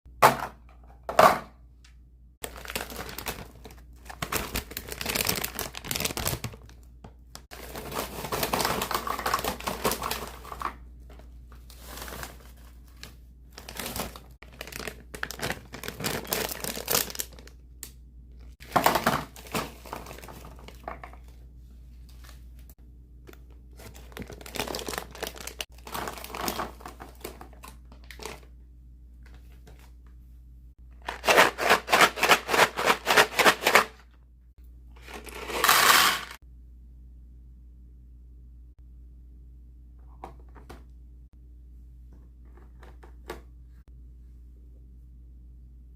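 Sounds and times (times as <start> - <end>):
snack packaging crinkling: 2.4 - 6.8, 11.8 - 17.6, 23.7 - 28.4, 31.0 - 33.9, 35.1 - 36.4.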